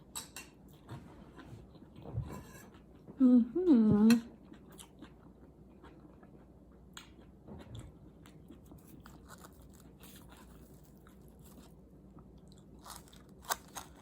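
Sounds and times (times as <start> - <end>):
person chewing food: 0.5 - 2.0, 4.4 - 14.0.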